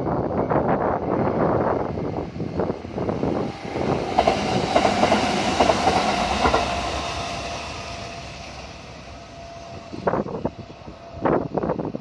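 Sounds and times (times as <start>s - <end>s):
train whine: 0.0s - 12.0s
train wheels clacking: 3.4s - 9.9s.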